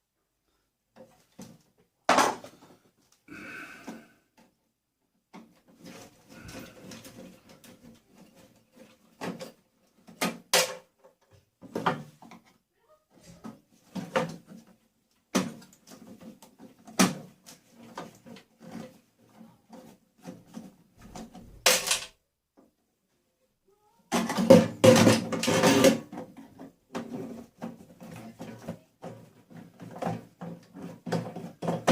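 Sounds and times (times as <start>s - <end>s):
metal and plastic parts clattering: 5.6s - 12.6s, 13.4s - 22.2s, 24.1s - 31.9s.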